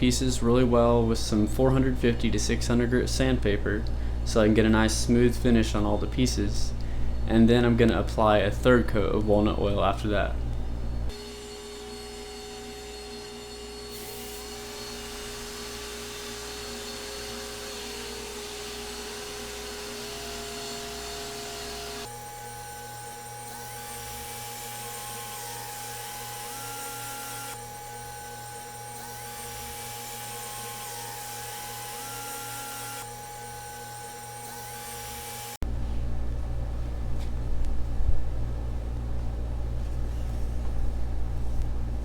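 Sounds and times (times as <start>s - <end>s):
small electric motor whining: 11.1s - 35.6s.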